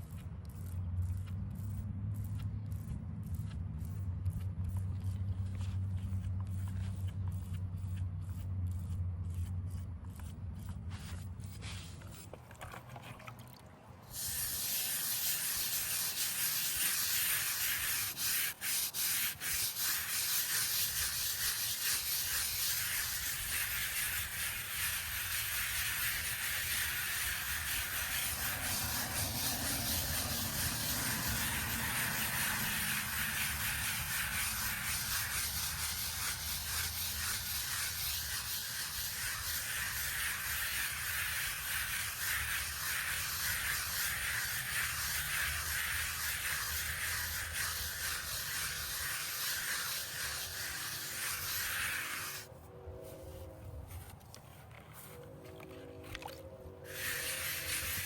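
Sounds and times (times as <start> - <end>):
abrasive rubbing on stone: 5.3 - 13.5, 14.1 - 52.5, 56.9 - 58.0.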